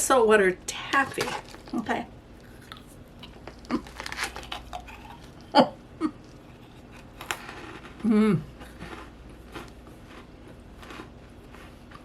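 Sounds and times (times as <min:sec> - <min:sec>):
crunching of candy being bitten: 0:01.2 - 0:05.6, 0:06.2 - 0:12.0
person humming: 0:08.0 - 0:08.6.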